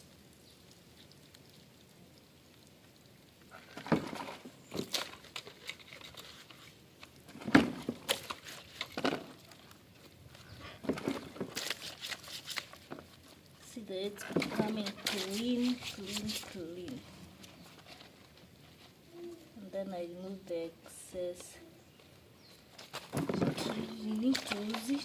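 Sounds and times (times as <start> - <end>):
scrubbing rubs: 7.8 - 19.1
plastic parts knocking: 23.0 - 25.0.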